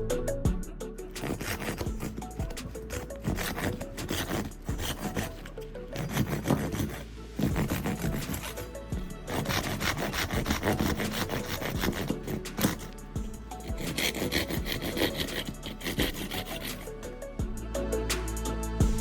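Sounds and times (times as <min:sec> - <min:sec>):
background music: 0:00.0 - 0:19.0
handsaw cutting wood: 0:01.2 - 0:13.0, 0:13.6 - 0:16.9.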